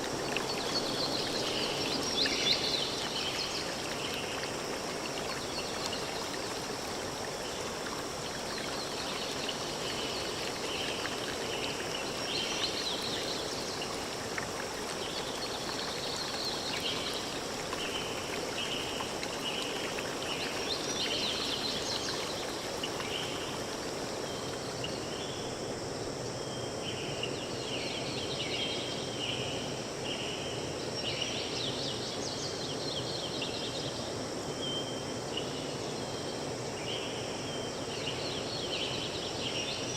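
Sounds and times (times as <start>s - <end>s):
running water: 0.0s - 25.2s.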